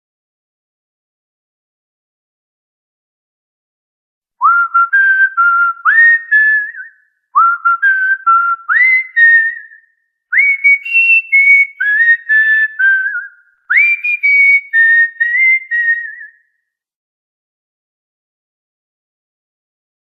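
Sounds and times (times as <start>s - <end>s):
cockatiel whistling a tune: 4.4s - 16.4s.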